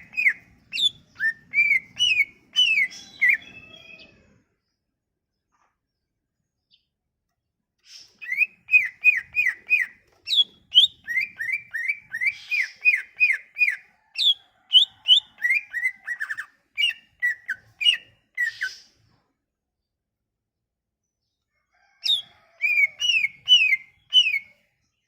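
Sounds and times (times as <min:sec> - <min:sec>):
songbird whistling: 0:00.0 - 0:04.2, 0:07.9 - 0:18.9, 0:22.0 - 0:24.6.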